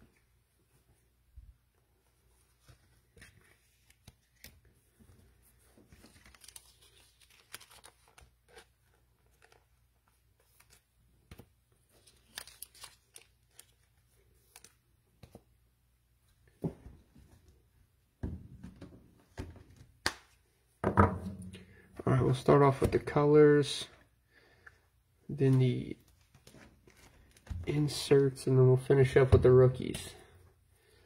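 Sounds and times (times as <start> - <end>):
trading cards and packaging crinkling: 2.4 - 15.4, 25.3 - 28.4.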